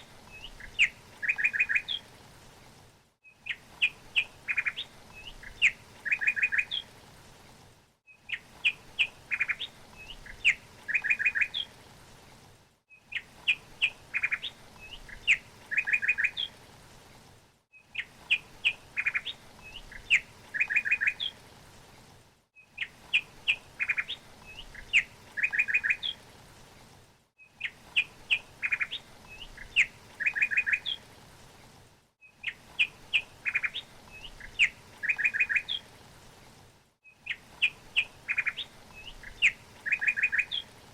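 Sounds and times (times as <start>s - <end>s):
songbird chirping: 0.0s - 2.1s, 3.2s - 6.9s, 8.1s - 11.8s, 12.9s - 16.6s, 17.7s - 21.4s, 22.6s - 26.2s, 27.4s - 31.1s, 32.2s - 36.0s, 37.0s - 40.9s.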